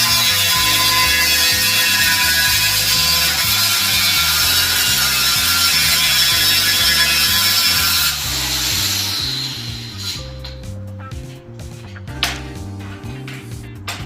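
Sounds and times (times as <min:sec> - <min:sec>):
power grinder grinding metal: 0:00.0 - 0:10.6
background music with bass line: 0:00.0 - 0:14.0.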